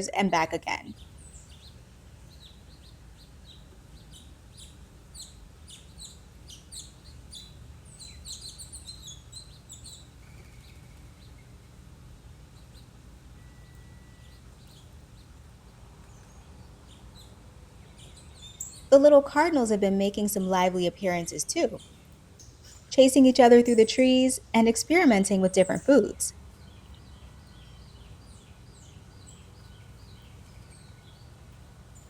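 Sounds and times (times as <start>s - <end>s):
low background hum: 0.0s - 32.0s
songbirds chirping: 0.0s - 32.0s.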